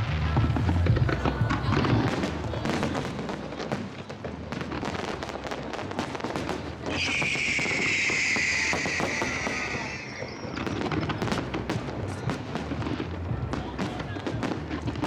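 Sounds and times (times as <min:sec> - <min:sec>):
fireworks crackling and banging: 0:00.0 - 0:15.0
high falling firework whistle: 0:06.9 - 0:11.1.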